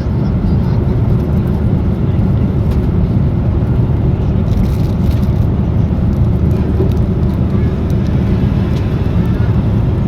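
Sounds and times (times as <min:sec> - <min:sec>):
airliner cabin roar: 0:00.0 - 0:10.0.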